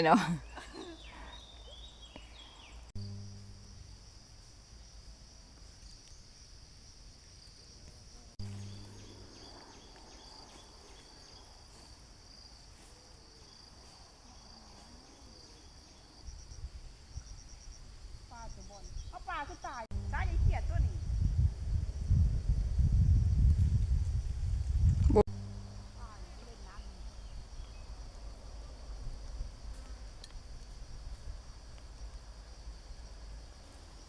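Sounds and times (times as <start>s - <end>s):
insect trilling: 7.4s - 12.4s, 25.1s - 28.5s.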